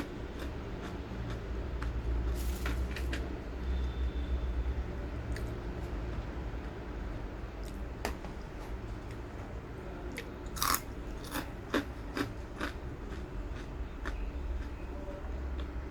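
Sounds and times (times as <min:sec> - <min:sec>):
crunchy crackers being chewed: 0:00.0 - 0:03.3, 0:10.1 - 0:14.8.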